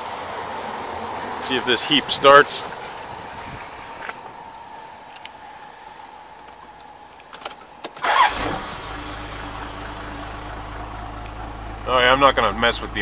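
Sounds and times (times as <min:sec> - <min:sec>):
clicks: 0:06.3 - 0:08.0
diesel engine cranking: 0:06.4 - 0:13.0
diesel truck engine idling: 0:08.0 - 0:13.0.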